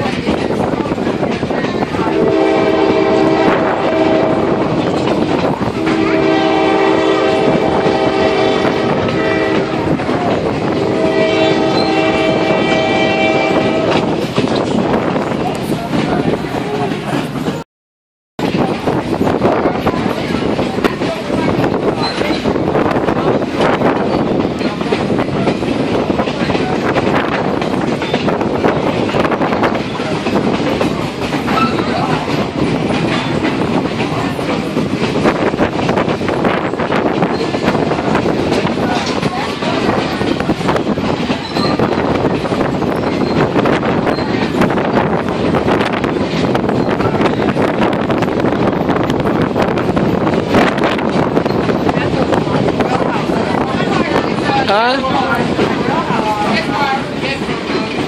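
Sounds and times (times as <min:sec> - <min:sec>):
moving train rumble: 0:00.0 - 0:17.6, 0:18.4 - 0:58.0
wheels clacking over rail joints: 0:00.0 - 0:17.6, 0:18.4 - 0:58.0
locomotive horn blasts: 0:02.0 - 0:04.8, 0:05.8 - 0:10.0, 0:10.7 - 0:14.2.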